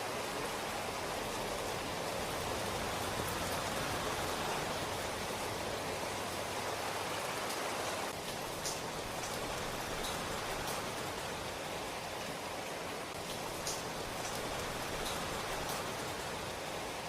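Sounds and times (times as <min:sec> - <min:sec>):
steady rain falling: 0:00.0 - 0:17.0
sharp raindrop ticks: 0:07.5 - 0:11.4, 0:13.1 - 0:16.6.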